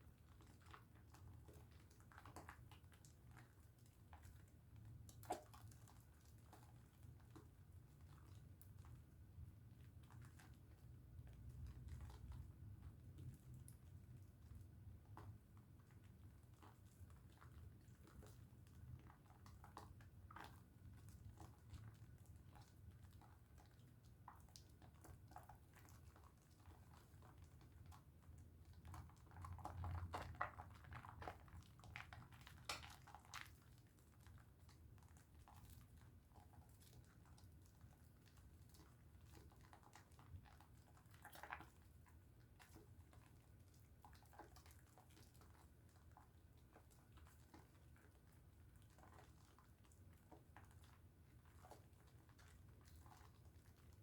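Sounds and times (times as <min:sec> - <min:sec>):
soap bar being lathered: 0:13.3 - 0:54.0.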